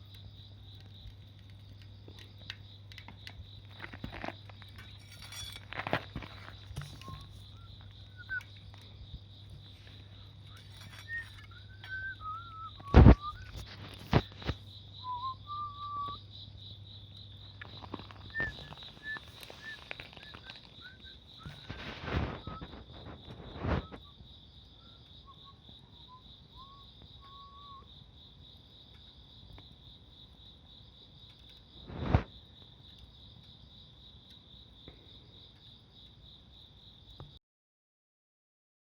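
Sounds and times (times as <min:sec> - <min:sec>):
insects trilling: 0:00.0 - 0:37.4
short whistled calls: 0:07.0 - 0:08.6, 0:10.5 - 0:16.2, 0:18.2 - 0:24.2, 0:24.8 - 0:27.9.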